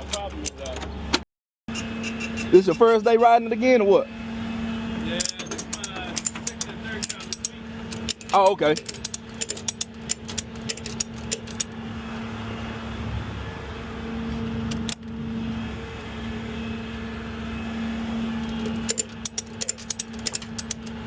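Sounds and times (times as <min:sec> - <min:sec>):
truck engine idling: 0:01.9 - 0:21.0
ratchet strap clicking: 0:05.2 - 0:11.8, 0:18.4 - 0:21.0.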